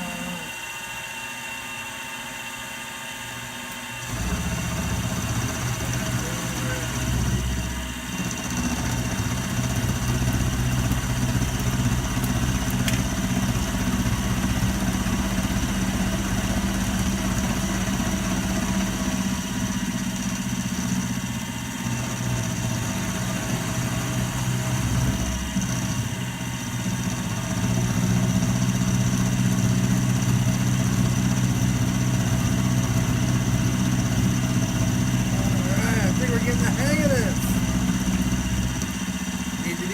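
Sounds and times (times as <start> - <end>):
milling machine humming: 0.0 - 39.9.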